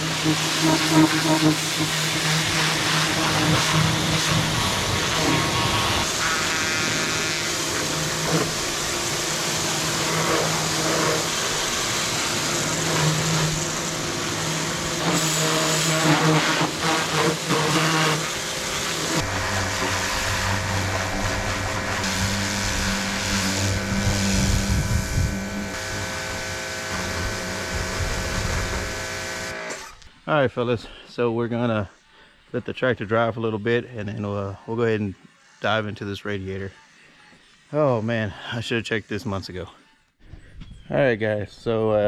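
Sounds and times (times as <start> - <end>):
pressure washer spray hiss: 0.0 - 25.3
motor hum: 0.0 - 30.0.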